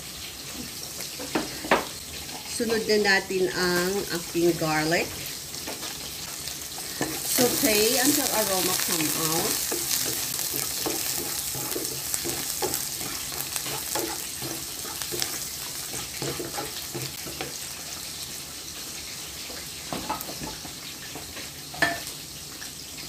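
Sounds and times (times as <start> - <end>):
garlic sizzling in oil: 0.0 - 23.0
wooden spatula scraping wok: 4.0 - 18.1.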